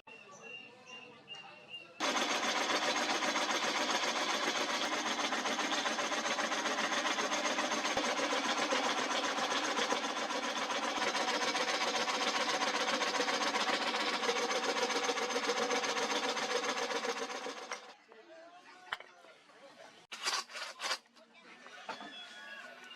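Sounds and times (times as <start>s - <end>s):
power tool rattling under load: 2.0s - 18.0s.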